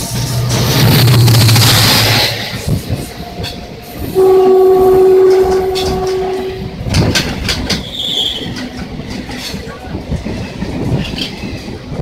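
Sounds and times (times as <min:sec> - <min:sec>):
train rushing past: 0:00.0 - 0:12.0
locomotive horn blast: 0:04.1 - 0:06.8.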